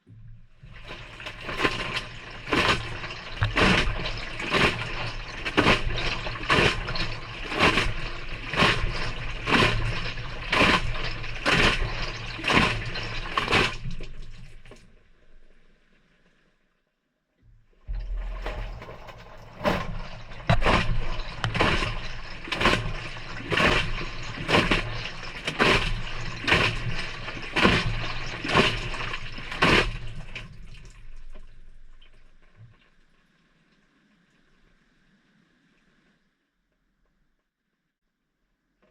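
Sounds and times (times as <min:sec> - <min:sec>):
water sloshing and splashing: 0:00.0 - 0:16.6, 0:17.5 - 0:36.4
washer motor hum: 0:00.1 - 0:14.8, 0:17.5 - 0:31.4.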